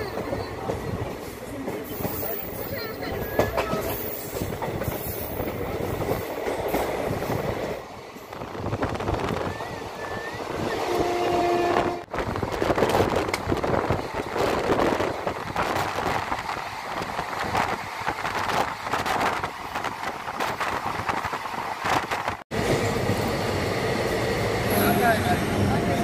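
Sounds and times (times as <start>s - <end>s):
train rumbling on track: 0.0s - 26.0s
train horn blast: 10.8s - 12.1s.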